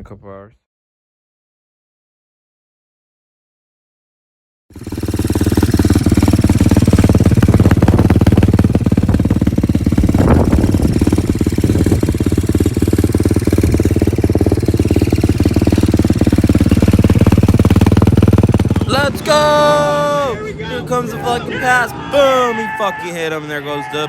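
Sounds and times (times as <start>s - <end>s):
small motorbike engine running: 4.7s - 22.6s.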